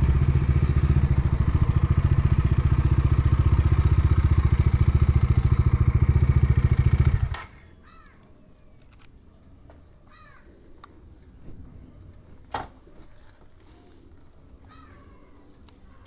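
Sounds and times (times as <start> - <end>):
motorcycle engine idling: 0.0 - 7.6
crow cawing: 7.8 - 8.2, 10.1 - 10.5, 14.6 - 16.0.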